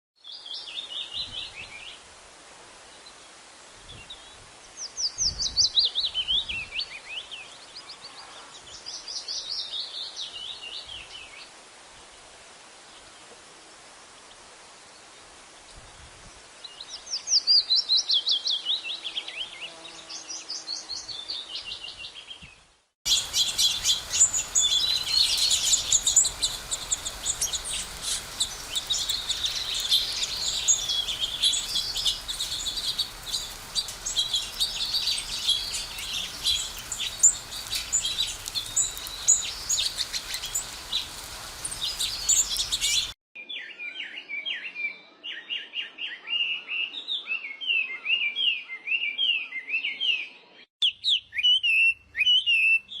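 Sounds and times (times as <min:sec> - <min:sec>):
sparrows chirping: 0:23.1 - 0:43.2.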